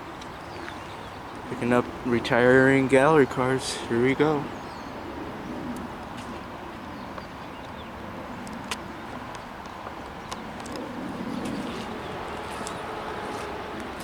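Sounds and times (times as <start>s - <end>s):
diesel locomotive rumble: 11.1s - 14.0s.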